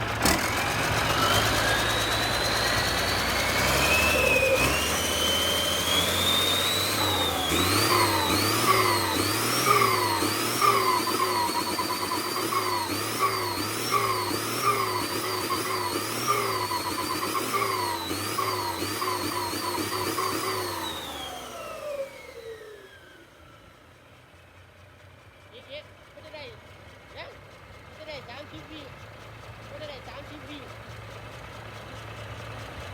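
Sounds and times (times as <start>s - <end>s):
engine revving with whine: 0.0s - 23.9s.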